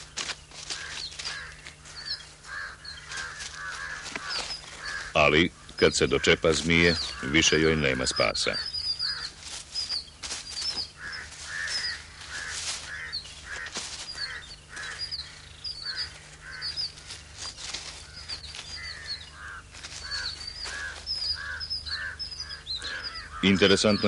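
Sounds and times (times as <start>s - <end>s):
birds cawing: 0.0s - 24.0s
faint low hum: 0.0s - 24.0s.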